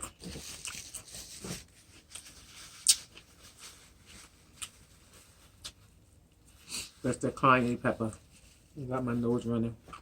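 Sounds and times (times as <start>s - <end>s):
person chewing: 0.0s - 1.2s, 2.0s - 3.3s.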